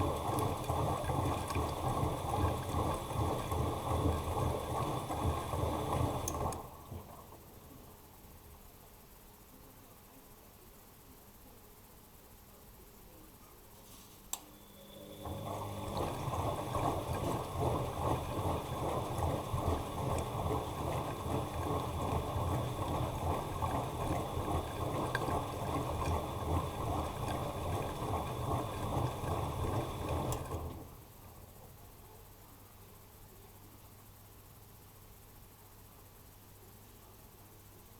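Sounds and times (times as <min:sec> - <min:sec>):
washing machine drum churning water: 0:00.0 - 0:07.5, 0:15.0 - 0:31.4.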